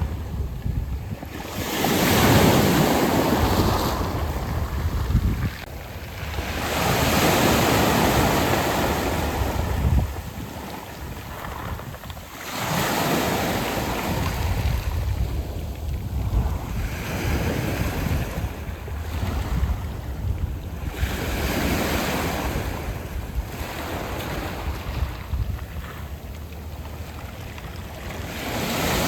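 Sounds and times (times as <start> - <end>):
waves washing on pebble beach: 0.0 - 29.0.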